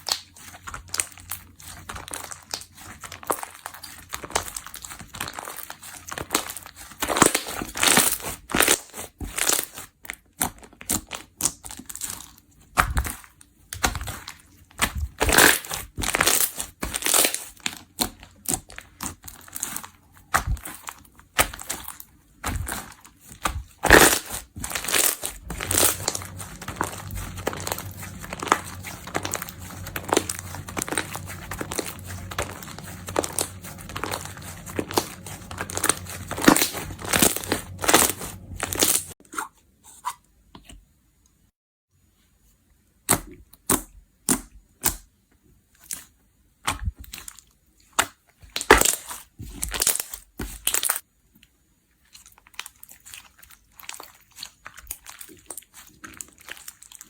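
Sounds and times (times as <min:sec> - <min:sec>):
slime crackling and popping: 0:14.8 - 0:39.2
low steady hum: 0:24.8 - 0:39.2.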